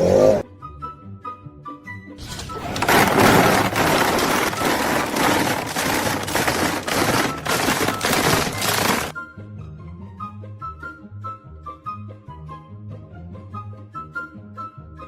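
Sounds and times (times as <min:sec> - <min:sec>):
harsh crackling and rattling: 0:02.2 - 0:09.1.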